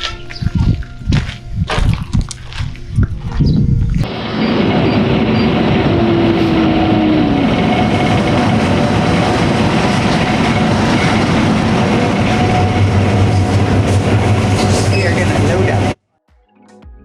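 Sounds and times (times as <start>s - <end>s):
motor rumbling: 0.0s - 16.0s
short falling whine: 4.0s - 16.0s.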